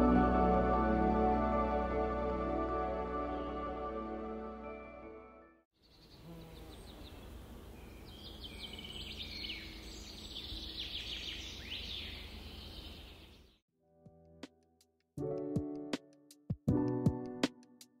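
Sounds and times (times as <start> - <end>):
birds chirping and trilling: 5.8 - 13.6.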